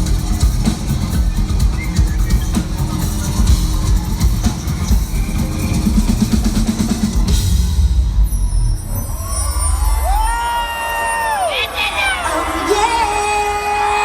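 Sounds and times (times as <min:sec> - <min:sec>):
live band playing: 0:00.0 - 0:07.9.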